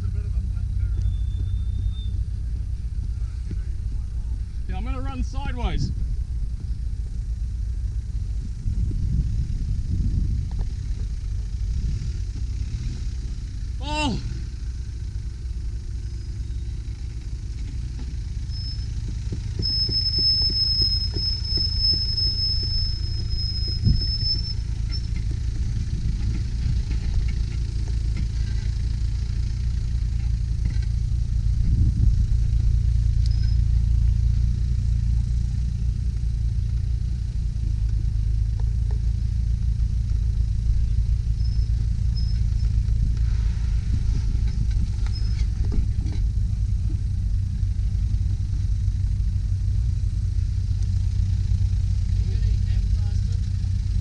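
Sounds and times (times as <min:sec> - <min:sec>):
car engine rumbling: 0:00.0 - 0:54.0
thin high whistle: 0:01.0 - 0:02.4, 0:18.4 - 0:25.2.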